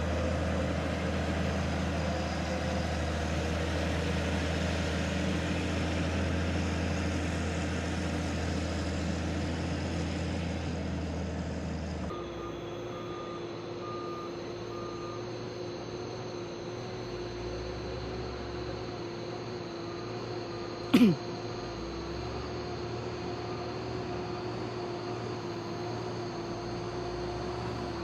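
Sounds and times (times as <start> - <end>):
diesel truck engine drone: 0.0 - 28.0
reversing alarm beeping: 12.1 - 15.7.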